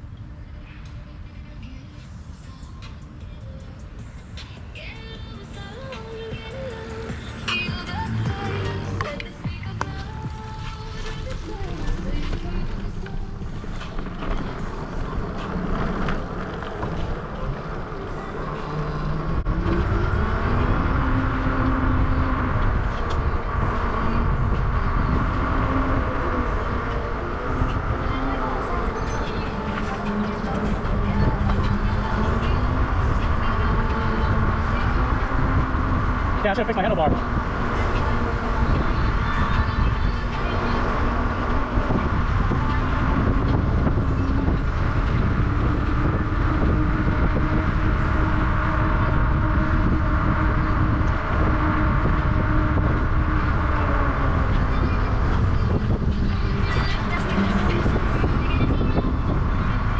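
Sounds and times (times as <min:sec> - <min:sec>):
electric bike hum: 0:00.0 - 0:59.9
wind and road noise: 0:00.0 - 0:59.9.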